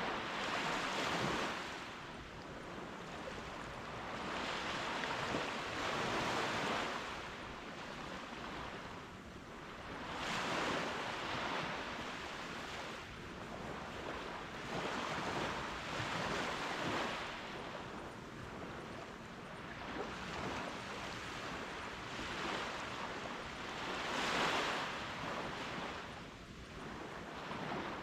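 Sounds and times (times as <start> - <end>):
ocean waves washing up a beach: 0.0 - 28.0.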